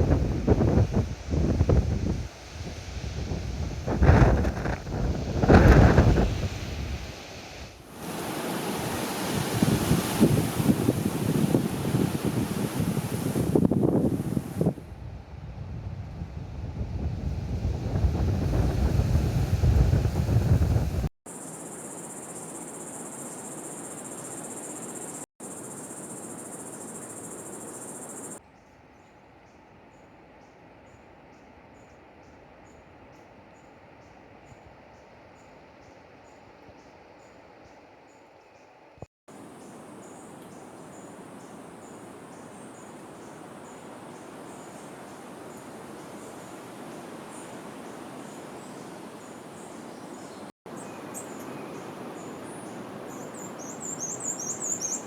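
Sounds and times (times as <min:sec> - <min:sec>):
insects trilling chorus: 0:07.9 - 0:14.7, 0:21.3 - 0:28.4, 0:39.3 - 0:55.0.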